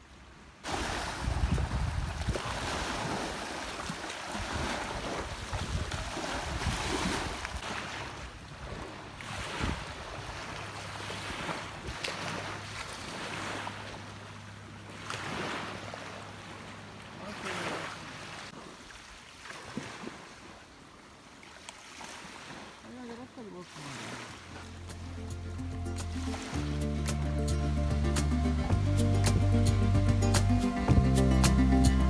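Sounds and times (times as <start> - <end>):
sea waves washing onto beach: 0.6 - 20.6, 21.4 - 27.5
wind buffeting microphone: 0.8 - 7.6, 8.2 - 10.6.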